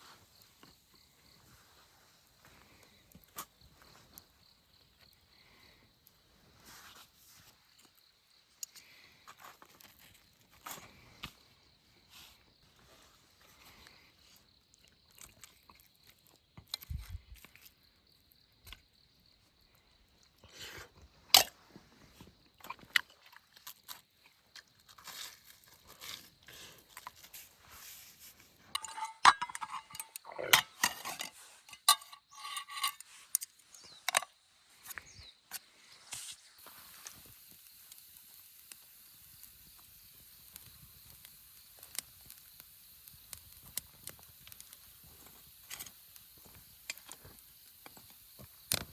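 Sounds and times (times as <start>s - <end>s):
camp gear being handled: 24.8s - 37.4s.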